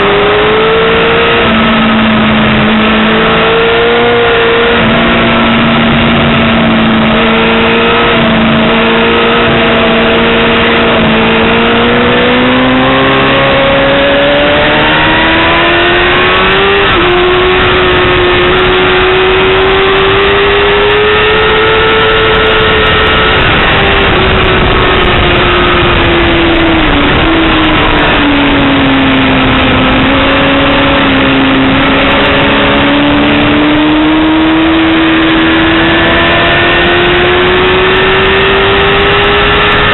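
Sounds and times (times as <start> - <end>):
motorcycle engine running hard: 0.0 - 39.9
wind noise: 0.0 - 39.9.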